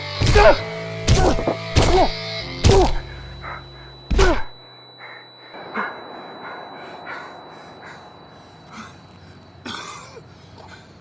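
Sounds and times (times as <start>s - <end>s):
low held music note: 5.6s - 9.6s.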